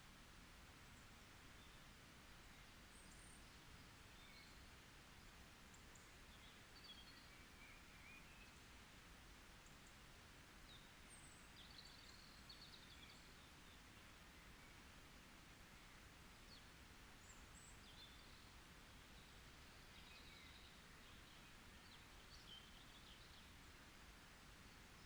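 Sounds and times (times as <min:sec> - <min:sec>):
steady low hiss: 0:00.0 - 0:25.0.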